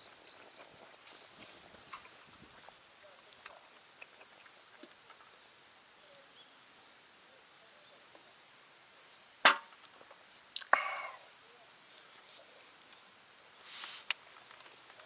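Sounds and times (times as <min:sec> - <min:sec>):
sharp knocks: 0:09.4 - 0:09.7.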